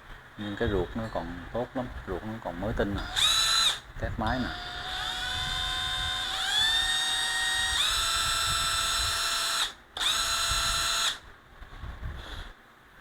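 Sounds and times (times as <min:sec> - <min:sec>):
cordless drill motor whining: 0:02.9 - 0:11.2.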